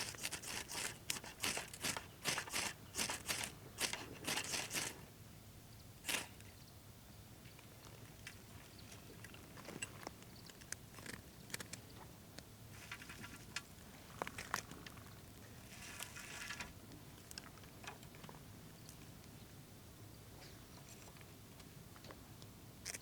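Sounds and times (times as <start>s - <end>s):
short scraping rustles: 0.0s - 5.0s, 6.0s - 6.4s, 15.6s - 16.7s.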